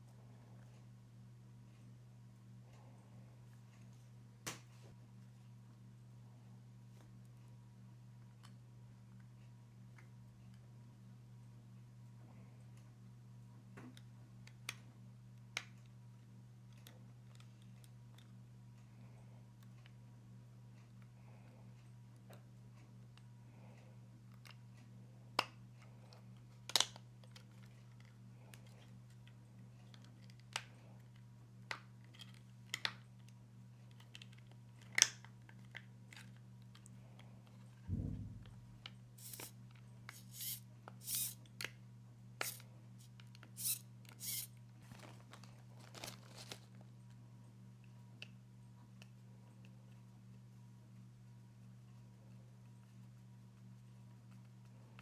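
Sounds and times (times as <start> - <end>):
steady low hum: 36.6 - 44.8
dull thud: 37.9 - 38.8
small parts clicking and tapping: 38.8 - 41.8, 42.4 - 44.5.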